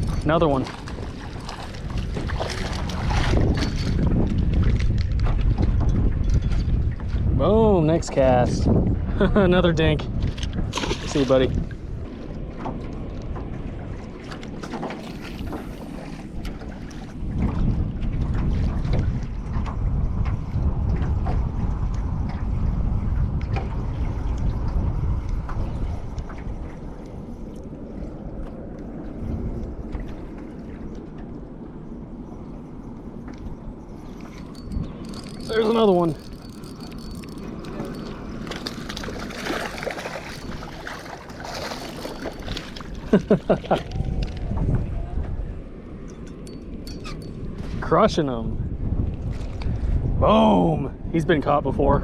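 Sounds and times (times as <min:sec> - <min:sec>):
water lapping against boat: 0:00.0 - 0:48.1, 0:48.9 - 0:50.2
wind buffeting microphone: 0:00.0 - 0:52.0
small splashes: 0:00.5 - 0:04.0, 0:34.1 - 0:44.3.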